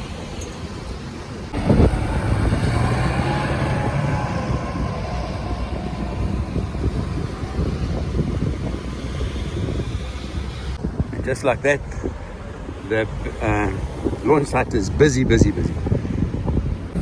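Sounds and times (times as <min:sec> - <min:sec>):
vehicle engine revving: 0:01.5 - 0:10.8.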